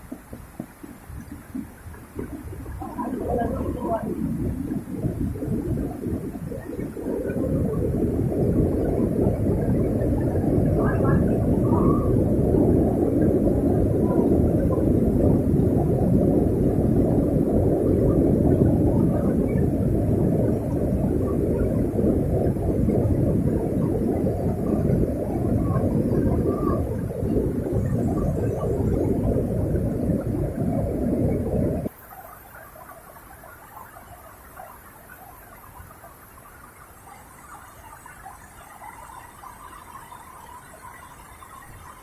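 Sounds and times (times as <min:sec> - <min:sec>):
low rumble: 0:00.0 - 0:31.9.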